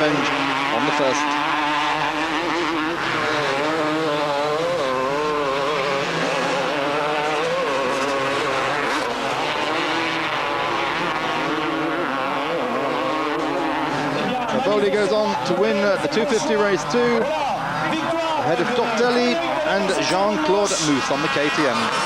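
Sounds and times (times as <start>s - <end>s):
motocross bike engines racing: 0.0s - 22.0s.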